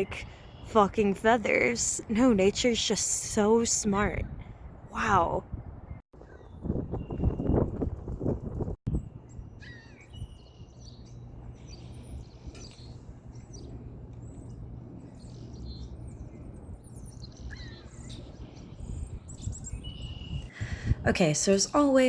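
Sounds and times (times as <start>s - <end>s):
small songbirds chirping: 0.0s - 1.7s, 8.9s - 21.8s
city background rumble: 0.0s - 6.8s, 7.6s - 22.0s.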